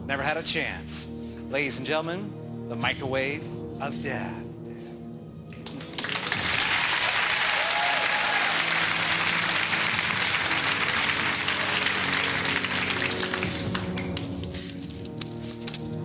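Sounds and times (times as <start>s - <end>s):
music playing: 0.0s - 16.0s
audience applauding: 5.6s - 14.5s.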